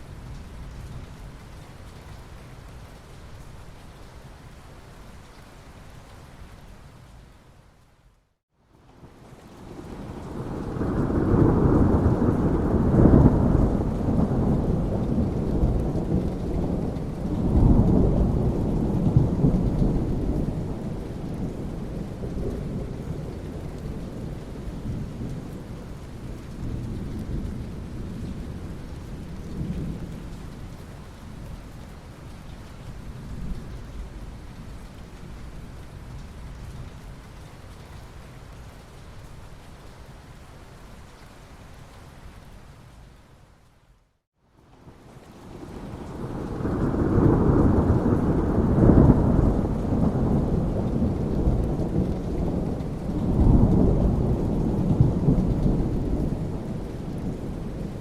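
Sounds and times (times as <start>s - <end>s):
steady rain: 0.0s - 58.0s
thunder rumbling: 9.6s - 30.6s, 45.4s - 58.0s.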